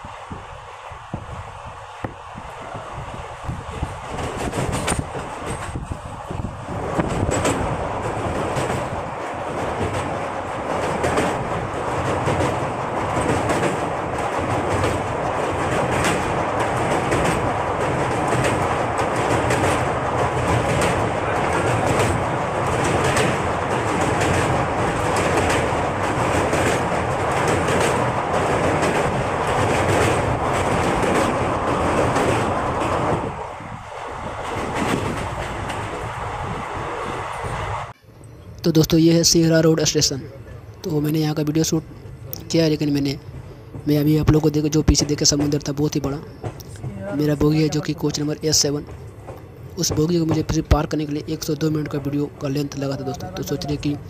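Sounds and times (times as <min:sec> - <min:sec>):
train rumble: 0:00.0 - 0:54.0
wheels clickety-clack over rail joints: 0:01.1 - 0:54.0.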